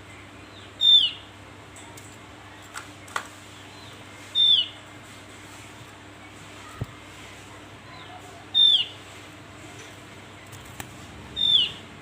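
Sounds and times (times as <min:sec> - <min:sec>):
bird calling: 0:00.5 - 0:01.3, 0:03.8 - 0:04.8, 0:07.9 - 0:09.0, 0:11.4 - 0:11.9.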